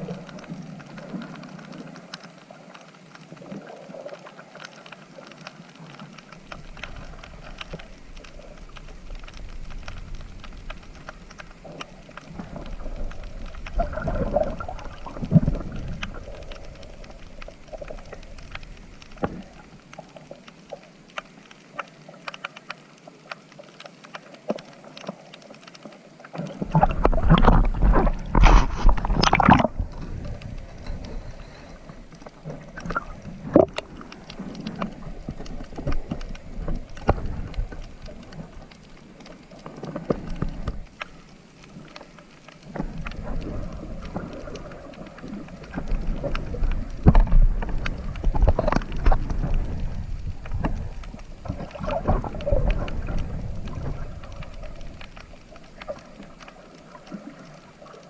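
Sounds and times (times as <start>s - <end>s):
water sloshing and splashing: 0.0s - 58.0s.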